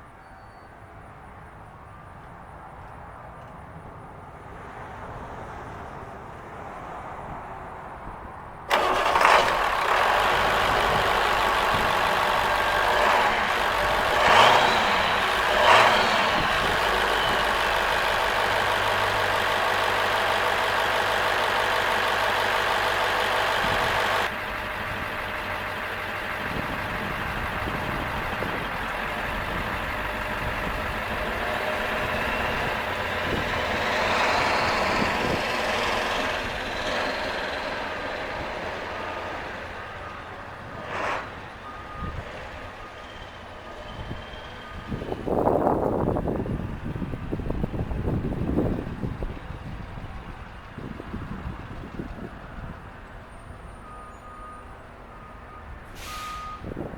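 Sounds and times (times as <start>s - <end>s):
diesel engine running: 8.7s - 56.9s.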